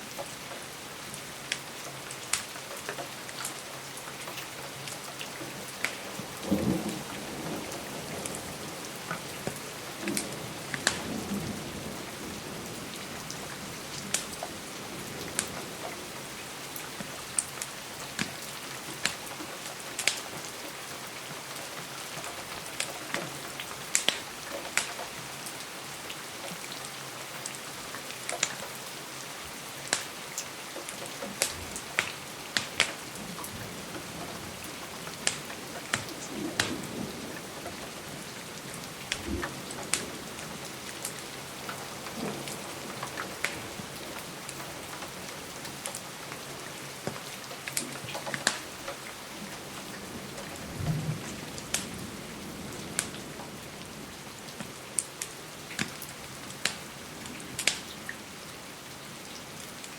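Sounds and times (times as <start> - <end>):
rain on a window: 0.0 - 59.9
fireplace crackling and popping: 1.4 - 3.6, 4.2 - 6.1, 9.0 - 11.1, 14.0 - 14.5, 16.7 - 20.4, 22.1 - 25.1, 29.8 - 49.9, 51.6 - 52.0, 54.5 - 56.9, 57.5 - 58.0.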